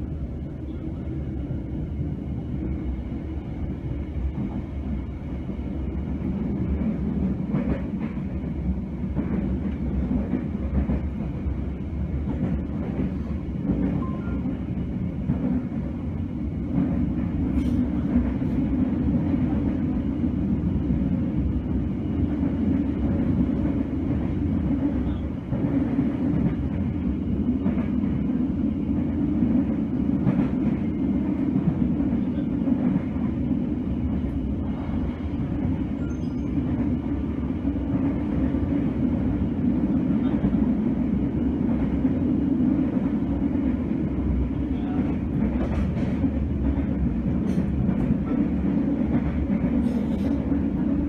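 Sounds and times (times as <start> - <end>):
train rumble inside coach: 0.0 - 51.0.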